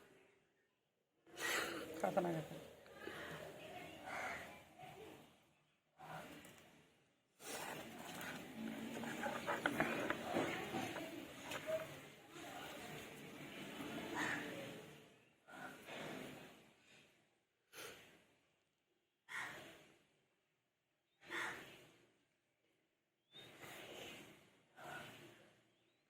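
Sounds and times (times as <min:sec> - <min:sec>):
faint breathing-like puffs: 0:07.4 - 0:18.6, 0:19.3 - 0:20.2, 0:23.4 - 0:25.8.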